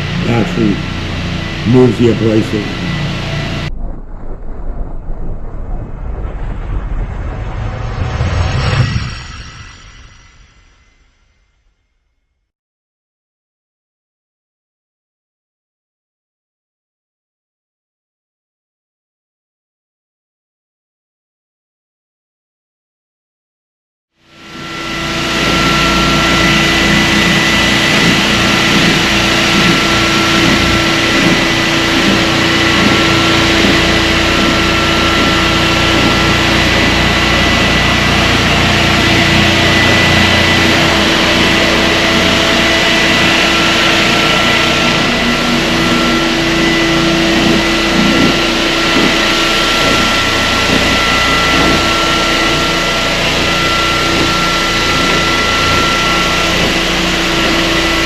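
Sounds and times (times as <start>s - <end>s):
floor sander running: 0.0s - 3.7s, 24.3s - 58.0s.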